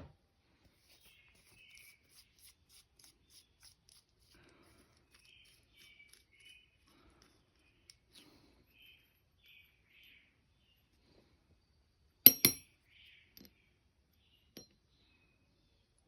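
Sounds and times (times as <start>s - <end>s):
sharp metallic clinks: 12.3s - 12.7s.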